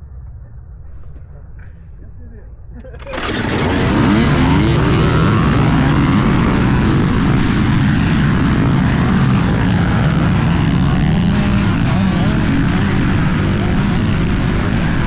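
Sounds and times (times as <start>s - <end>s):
dirt bike engine running hard: 3.0s - 15.0s.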